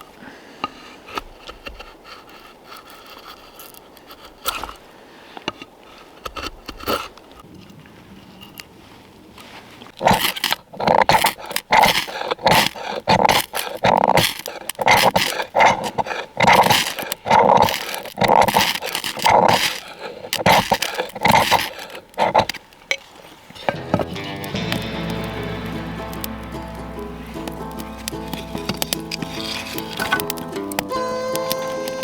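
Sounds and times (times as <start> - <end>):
animal calling: 23.5 - 32.0.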